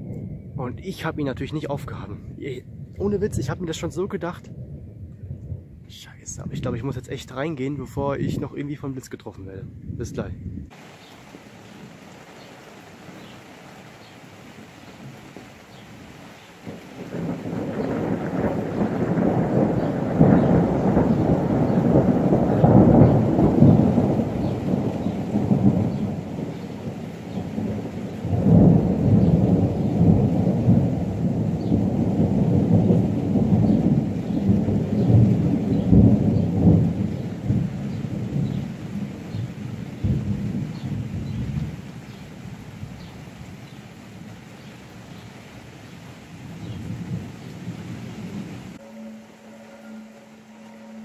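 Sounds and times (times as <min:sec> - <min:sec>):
rain falling: 0:10.7 - 0:51.0
thunder rolling: 0:16.6 - 0:41.9, 0:46.4 - 0:51.0.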